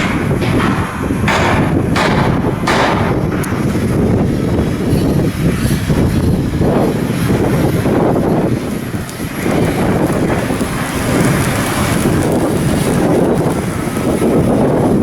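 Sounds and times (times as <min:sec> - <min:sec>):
sharp knocks: 0:00.0 - 0:04.8
loud low rumble: 0:00.0 - 0:05.4.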